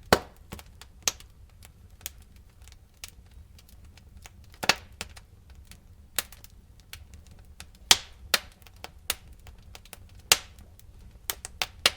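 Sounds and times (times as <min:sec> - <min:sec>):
wood fire crackling and popping: 0:00.0 - 0:11.9.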